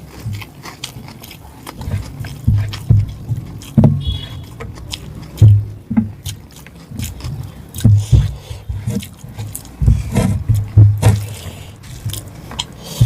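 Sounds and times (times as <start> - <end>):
person chewing food: 0.0 - 13.0
wet mouth clicks: 0.0 - 13.0
low thumps: 1.8 - 6.3, 7.0 - 12.4.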